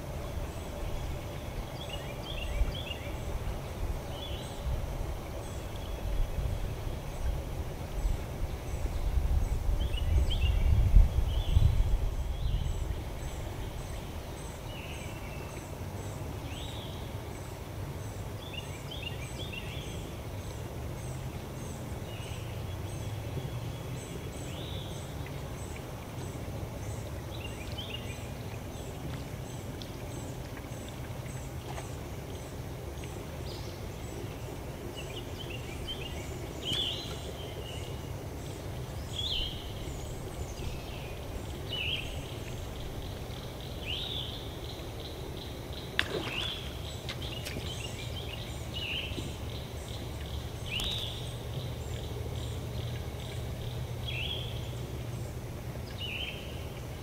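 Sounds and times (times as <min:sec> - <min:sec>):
low microphone rumble: 0:00.0 - 0:14.4
birds chirping: 0:32.3 - 0:57.0.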